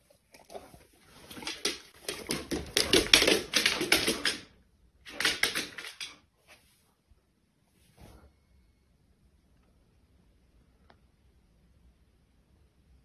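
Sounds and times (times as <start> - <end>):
dog claws clicking on hardwood floor: 0.5 - 4.5, 5.1 - 6.2.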